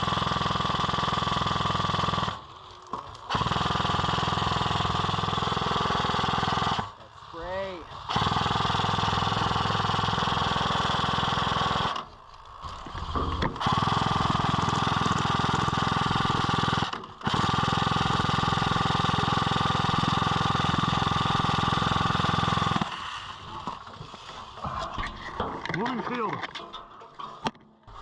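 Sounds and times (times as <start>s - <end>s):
airsoft gun full-auto bursts: 3.3s - 6.9s, 7.9s - 12.1s, 13.6s - 22.9s.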